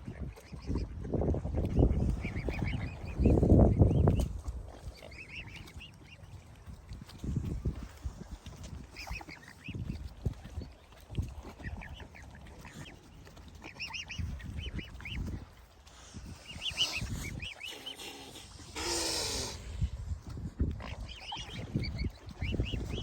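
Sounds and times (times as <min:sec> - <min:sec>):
birds calling: 0:01.6 - 0:06.4, 0:08.8 - 0:15.6, 0:16.2 - 0:20.0, 0:20.8 - 0:23.0.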